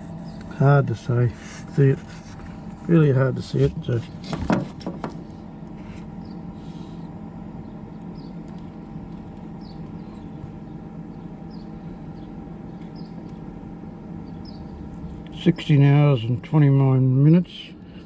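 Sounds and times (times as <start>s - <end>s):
fridge compressor humming: 0.0s - 18.0s.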